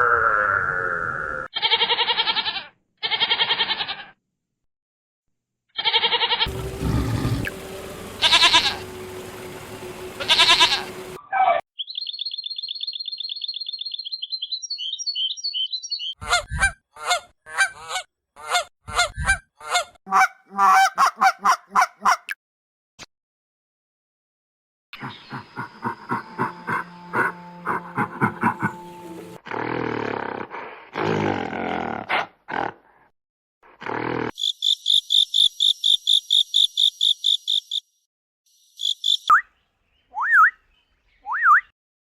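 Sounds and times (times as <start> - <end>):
animal calls: 6.4 - 8.8, 25.0 - 29.2
long high trilling call: 6.5 - 11.2.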